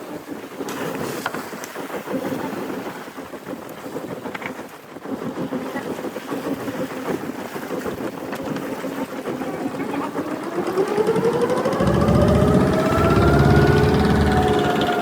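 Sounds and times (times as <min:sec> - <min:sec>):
boat engine speeding up: 0:08.8 - 0:15.0.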